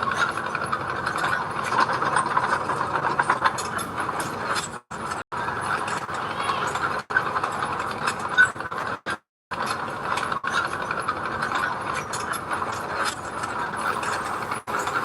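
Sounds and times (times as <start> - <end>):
bulldozer engine: 0.1 - 7.0, 13.3 - 15.0
metallic track clanking: 0.1 - 7.8, 11.3 - 15.0.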